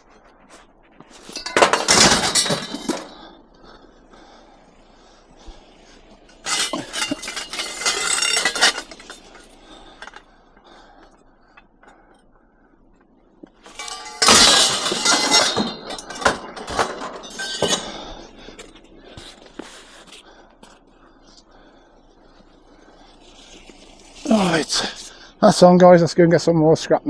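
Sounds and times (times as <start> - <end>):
scrap metal crashing and clanking: 1.2 - 3.3, 6.3 - 10.2, 13.7 - 18.3.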